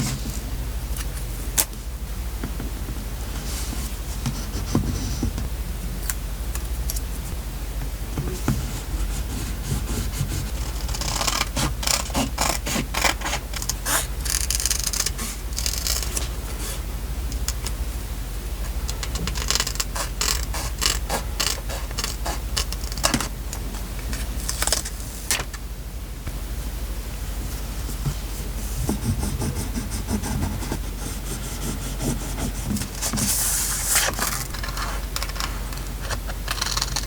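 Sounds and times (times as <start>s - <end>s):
steady low hum: 0.0s - 37.0s
paper rustling and scraping: 30.6s - 37.0s.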